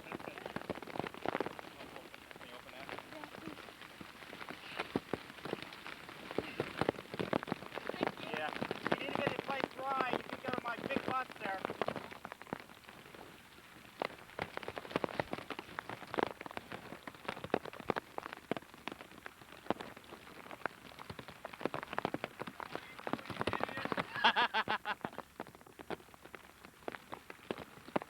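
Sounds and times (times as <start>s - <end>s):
rain tapping on hard surface: 0.0s - 28.0s
person speaking: 7.8s - 11.6s.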